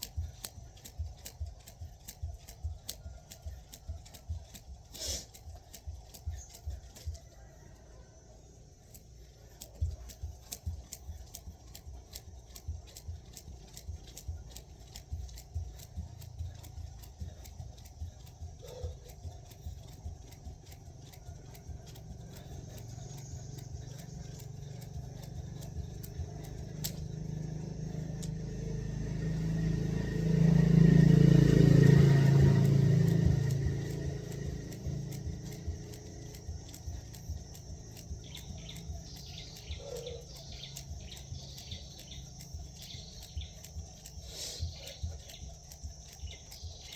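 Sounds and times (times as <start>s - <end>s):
jump rope slapping ground: 0.0s - 7.3s, 9.6s - 28.9s
vehicle engine rumble: 0.0s - 46.9s.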